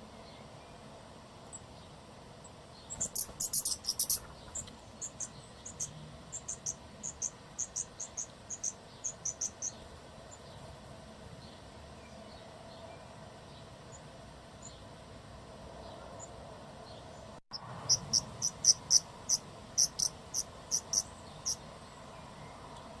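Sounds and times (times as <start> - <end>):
high-pitched animal chirps: 2.9 - 4.2, 17.9 - 21.6.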